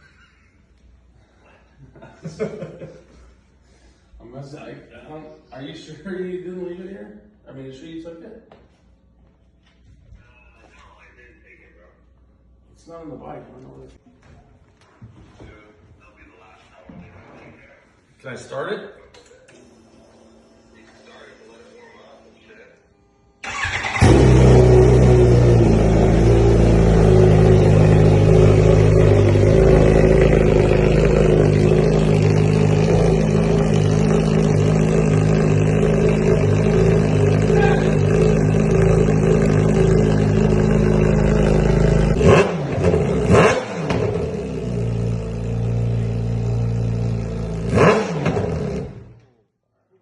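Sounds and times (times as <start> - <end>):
motorcycle engine revving: 23.4 - 49.2
motorcycle engine running loud: 23.5 - 49.2.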